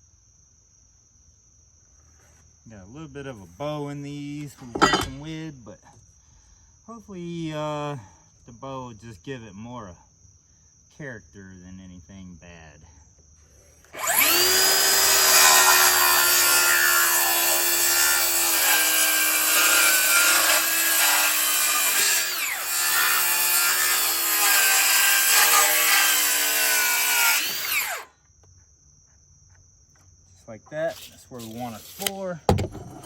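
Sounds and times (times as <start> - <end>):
circular saw cutting wood: 4.7 - 5.3, 13.8 - 28.1, 30.9 - 33.0.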